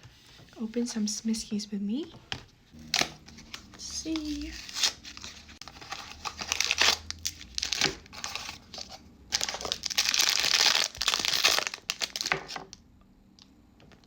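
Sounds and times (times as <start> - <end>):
packaging rustling and crinkling: 3.0 - 12.8
packaging tearing: 4.2 - 12.6.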